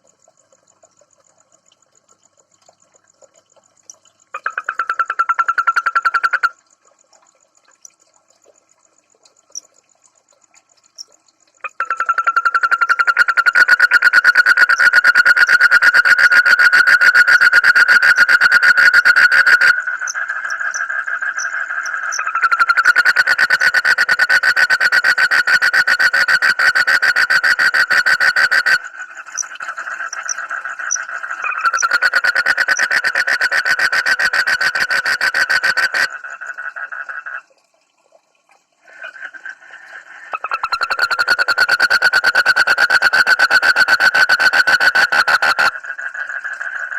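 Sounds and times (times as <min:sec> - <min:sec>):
frog calling in rapid pulses: 0:03.8 - 0:06.8, 0:10.5 - 0:37.5, 0:38.8 - 0:46.9.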